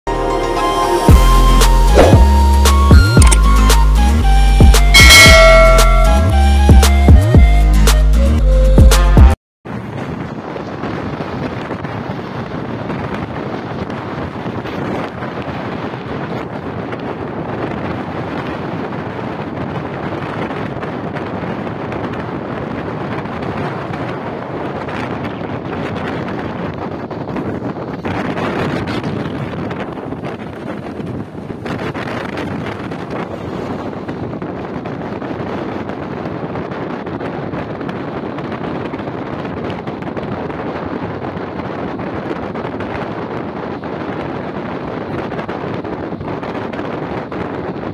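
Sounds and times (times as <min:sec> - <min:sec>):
wind rushing over microphone: 0:01.1 - 0:07.6, 0:09.7 - 0:47.9
train running on track: 0:09.7 - 0:47.9.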